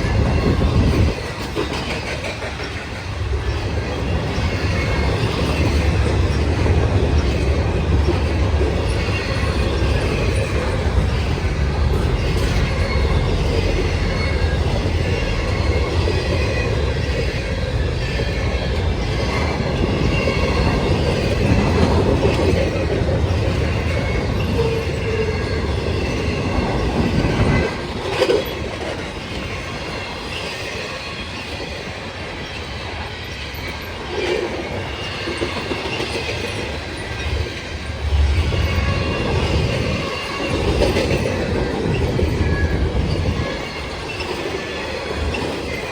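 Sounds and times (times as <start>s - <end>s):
rumble of train wheels on rail: 0.0s - 45.9s
clatter over rail joints: 0.2s - 17.4s.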